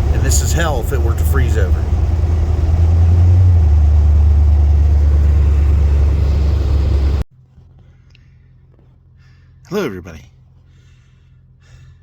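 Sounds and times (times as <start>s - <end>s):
car engine and road noise: 0.0s - 8.0s.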